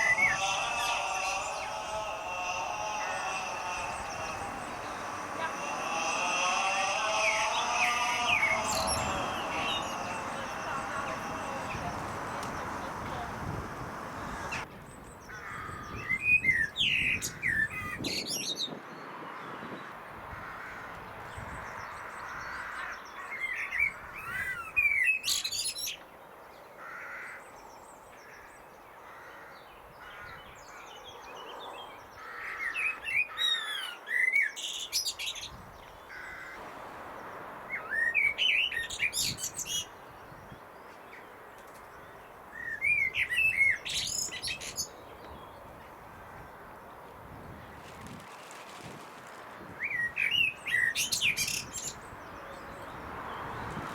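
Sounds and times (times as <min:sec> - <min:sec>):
blackbird singing: 0:00.0 - 0:14.6, 0:37.7 - 0:41.3, 0:41.9 - 0:45.9, 0:49.8 - 0:53.7.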